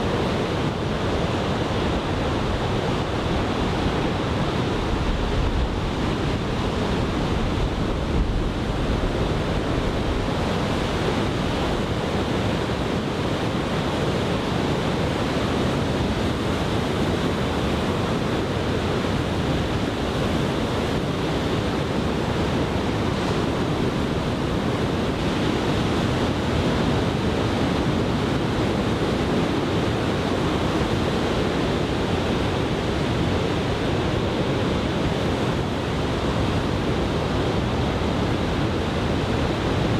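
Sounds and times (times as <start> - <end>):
ocean surf washing on beach: 0.0 - 39.9.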